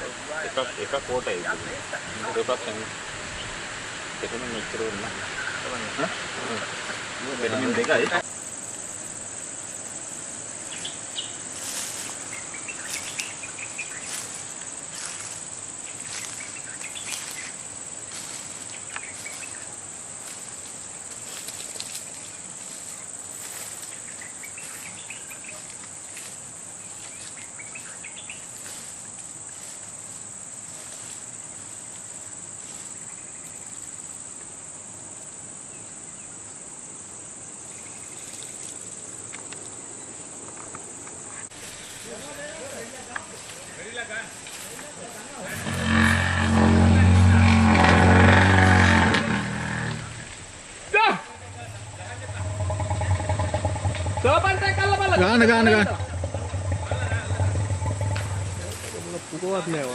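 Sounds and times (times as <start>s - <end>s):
insects droning high-pitched: 0.0s - 59.9s
faint chirps: 8.2s - 29.8s.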